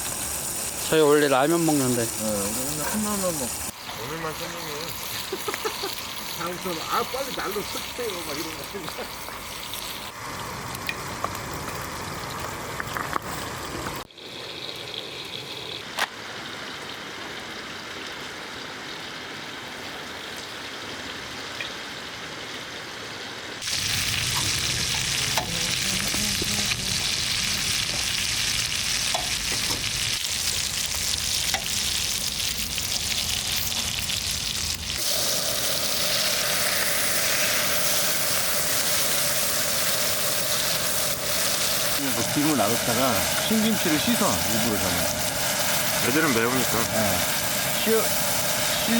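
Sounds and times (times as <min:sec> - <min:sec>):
food sizzling in oil: 0:00.0 - 0:16.0, 0:23.6 - 0:48.9.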